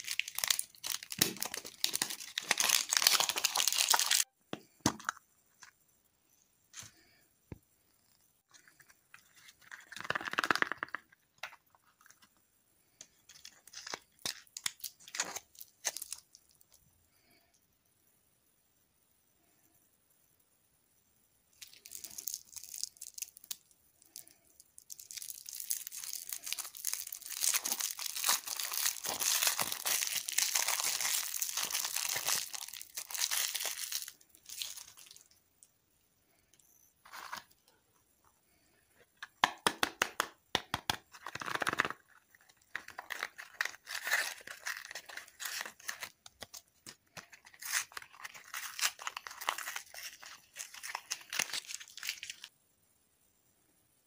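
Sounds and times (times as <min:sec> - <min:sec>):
candy wrappers crinkling and tearing: 0:00.0 - 0:04.3, 0:08.7 - 0:12.3, 0:13.1 - 0:16.8, 0:21.6 - 0:35.4, 0:39.4 - 0:52.5.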